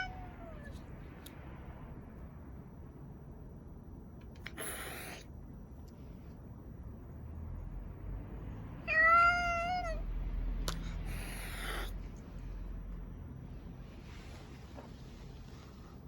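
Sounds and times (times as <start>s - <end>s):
cat meowing: 0.0s - 0.8s, 8.8s - 10.0s.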